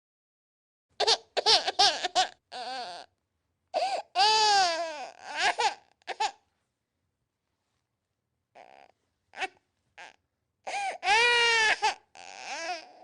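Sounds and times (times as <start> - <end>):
infant crying: 1.0 - 3.1, 3.7 - 6.4, 8.5 - 13.0.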